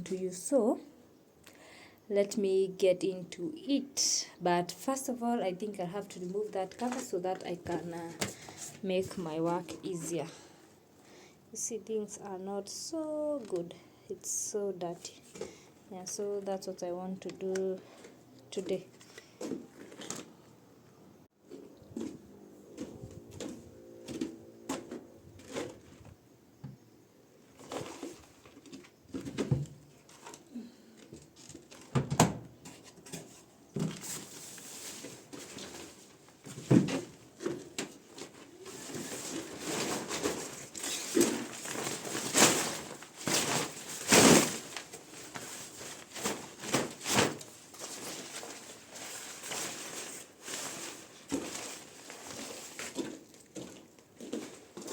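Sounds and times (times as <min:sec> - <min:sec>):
cover rustling: 0:18.0 - 0:20.4, 0:27.5 - 0:54.9.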